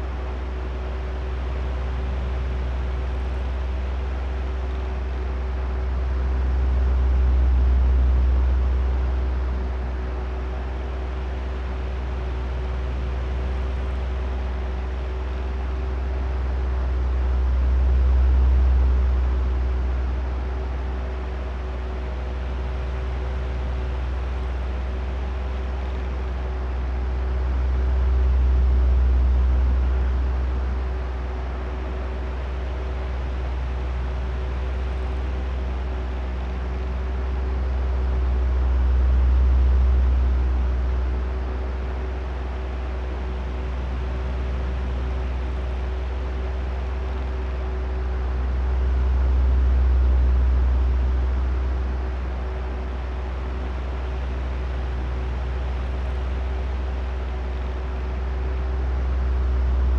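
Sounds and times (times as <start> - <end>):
electric fan motor hum: 21.6 - 59.9.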